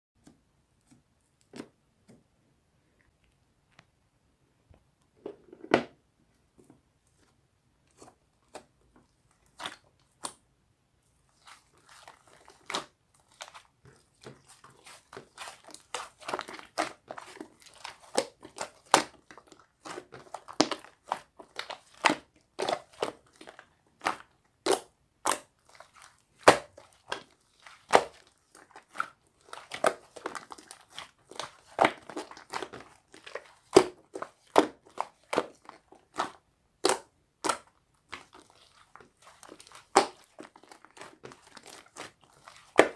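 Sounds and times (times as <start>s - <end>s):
slime squishing with clicks and pops: 11.4s - 42.9s.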